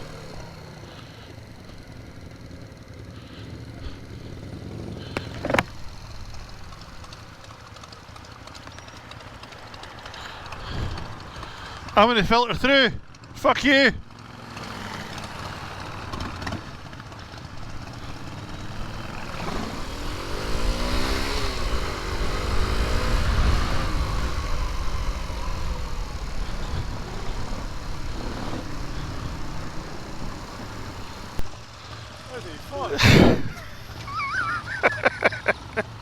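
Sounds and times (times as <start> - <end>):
motorcycle engine running: 0.0 - 36.0
wind rush: 19.9 - 28.0.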